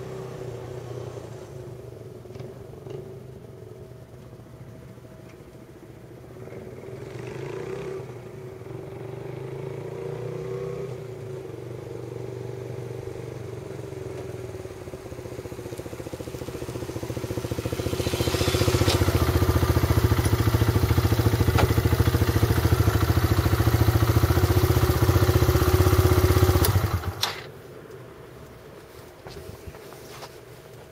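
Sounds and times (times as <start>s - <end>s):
motorcycle engine running: 13.5s - 27.3s.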